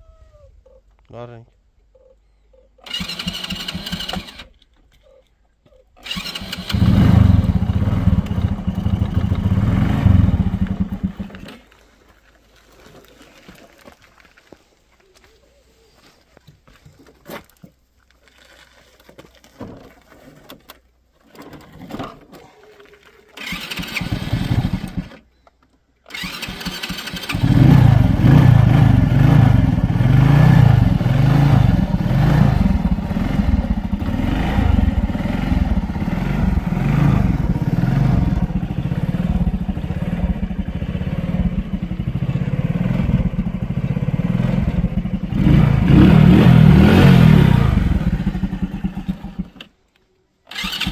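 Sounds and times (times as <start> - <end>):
motorcycle engine starting and running: 2.8 - 4.6, 6.0 - 11.9, 23.3 - 25.3, 26.1 - 49.8, 50.5 - 50.9.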